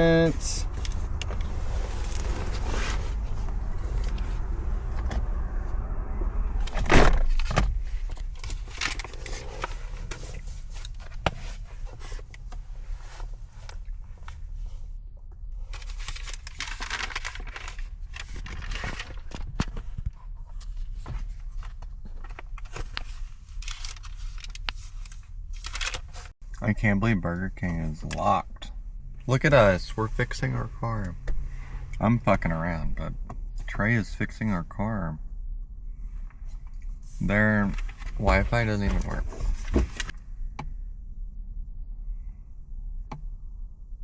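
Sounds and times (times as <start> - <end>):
low rumble: 0.0 - 44.0
handling rustling: 15.7 - 26.4.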